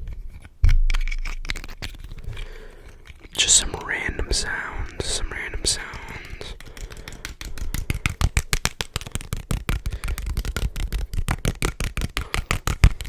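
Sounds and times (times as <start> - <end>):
rapid tapping on microphone: 3.3 - 13.0.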